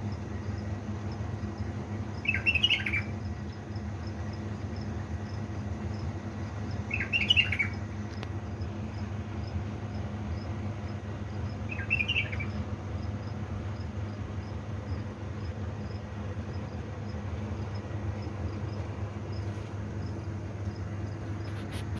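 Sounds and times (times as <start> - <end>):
steady low hum: 0.0 - 21.9
bird chirp: 2.2 - 3.2, 6.7 - 7.9, 11.5 - 13.4
faint high ticks: 8.0 - 8.4.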